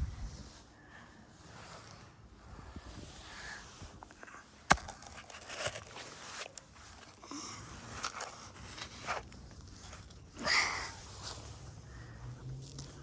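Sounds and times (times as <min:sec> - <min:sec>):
toy trucks scraping and rustling: 0:04.7 - 0:11.6.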